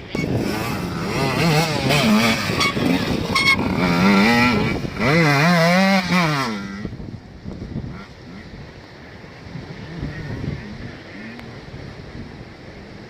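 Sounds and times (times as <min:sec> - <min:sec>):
motorcycle engine revving: 0:00.0 - 0:07.0.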